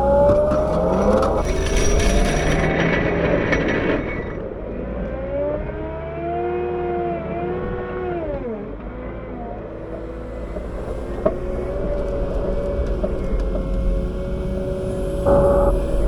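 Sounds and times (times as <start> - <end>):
plow scraping on pavement: 0.0 - 5.0, 9.7 - 16.0
wheel loader diesel engine: 0.0 - 16.0.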